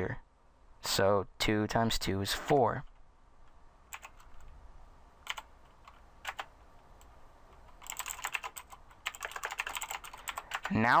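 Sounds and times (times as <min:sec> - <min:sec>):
typing on computer keyboard: 0:03.9 - 0:04.5, 0:05.2 - 0:06.5, 0:07.6 - 0:10.8.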